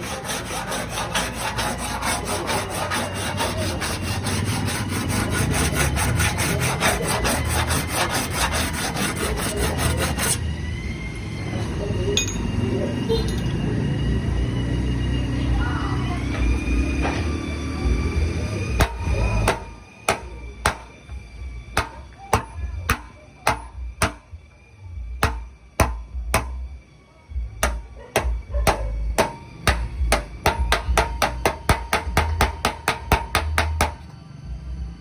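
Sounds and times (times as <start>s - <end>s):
hammer tapping on sheet metal: 18.8s - 20.9s, 21.8s - 24.3s, 25.2s - 26.6s, 27.6s - 34.0s.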